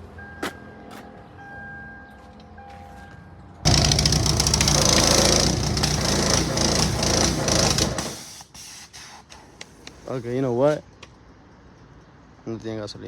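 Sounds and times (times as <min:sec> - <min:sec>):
car engine cranking: 0:03.7 - 0:08.2.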